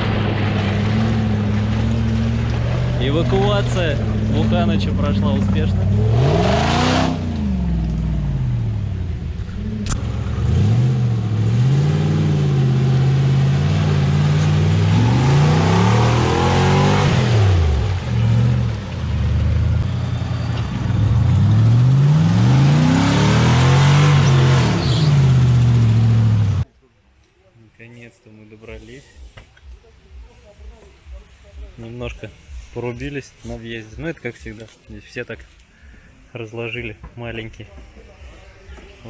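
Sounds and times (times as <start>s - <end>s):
off-road vehicle engine revving: 0.0s - 26.7s.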